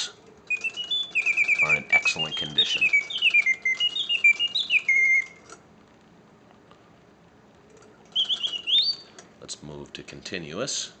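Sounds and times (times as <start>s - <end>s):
mechanical bird whistling: 0.0s - 5.6s, 8.1s - 9.2s.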